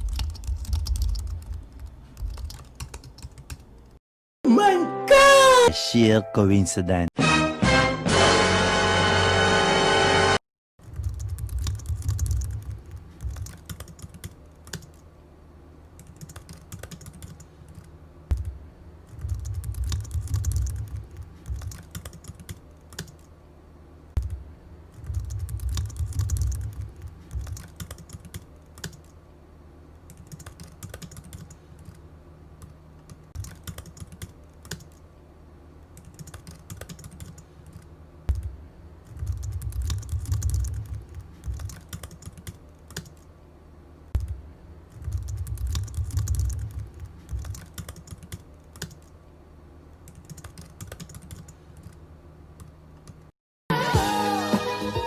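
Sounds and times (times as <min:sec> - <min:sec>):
rapid clicking like typing: 0:00.0 - 0:04.0, 0:10.8 - 0:15.0, 0:16.0 - 0:23.3, 0:24.2 - 0:29.2, 0:30.1 - 0:32.0, 0:32.6 - 0:35.0, 0:35.9 - 0:43.3, 0:44.2 - 0:49.2, 0:50.0 - 0:52.0.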